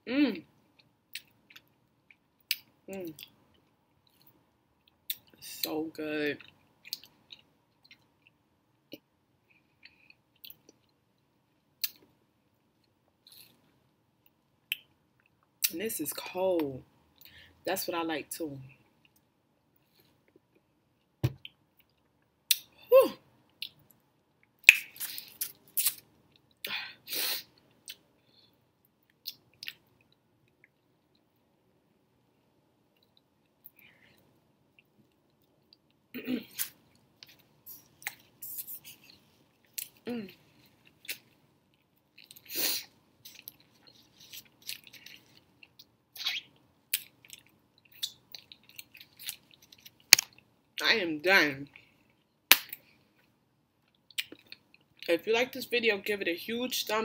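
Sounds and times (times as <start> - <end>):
person chewing food: 0.7 - 5.4, 6.4 - 15.6, 19.0 - 22.6, 32.9 - 42.5, 43.2 - 46.0, 46.9 - 50.5, 51.8 - 55.0
wet mouth noises and lip smacks: 29.1 - 31.2, 53.8 - 54.9.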